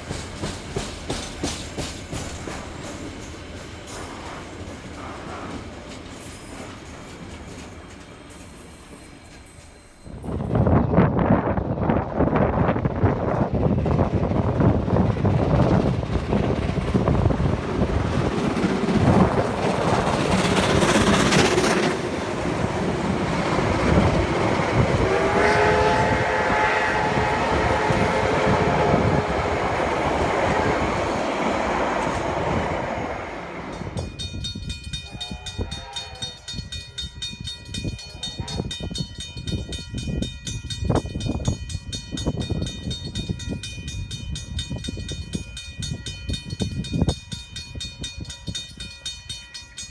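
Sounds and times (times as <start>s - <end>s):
train rolling rumble: 0.0s - 49.9s
train horn: 23.3s - 31.2s, 35.0s - 36.5s.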